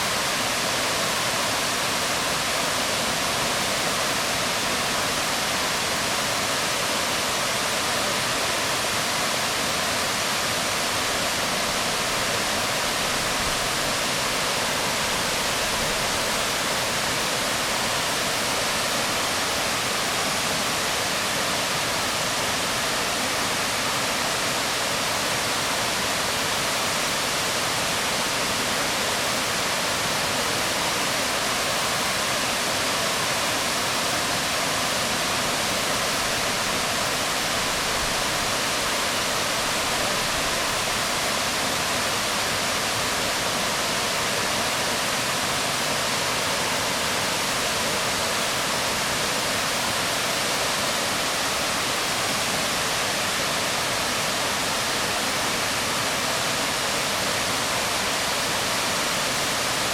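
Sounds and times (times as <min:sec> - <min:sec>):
waterfall falling onto rocks: 0:00.0 - 0:59.9.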